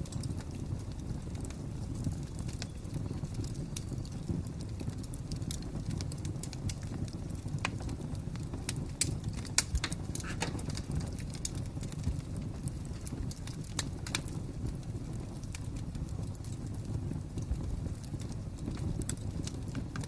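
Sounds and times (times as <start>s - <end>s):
fire burning rush: 0.0s - 20.0s
fire pops and snaps: 0.0s - 20.0s.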